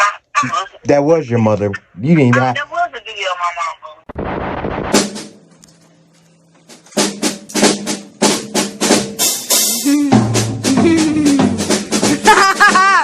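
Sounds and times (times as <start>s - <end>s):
drum kit beat: 4.6s - 5.4s, 6.7s - 13.0s.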